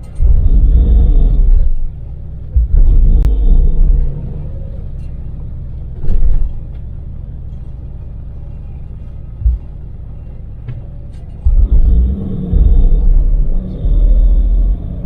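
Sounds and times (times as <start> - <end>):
road rumble: 0.0 - 15.0
van engine drone: 0.0 - 15.0
low thump: 0.2 - 1.8, 2.5 - 4.2, 9.4 - 9.8, 11.4 - 15.0.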